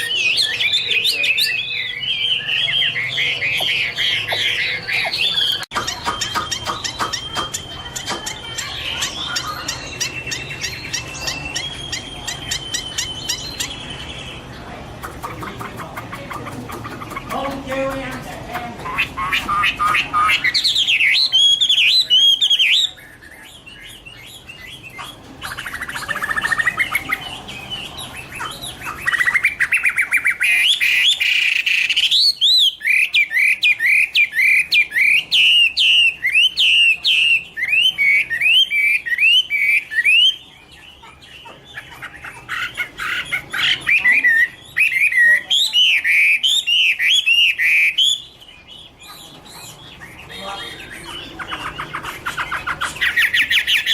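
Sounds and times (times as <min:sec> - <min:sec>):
bird singing whistled notes: 0:00.0 - 0:14.4.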